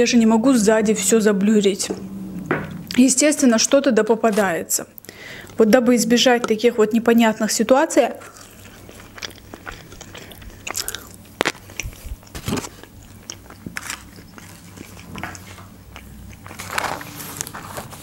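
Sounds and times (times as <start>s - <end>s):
wet mouth clicks: 8.2s - 12.3s
chewing with soft crunches: 8.2s - 18.0s.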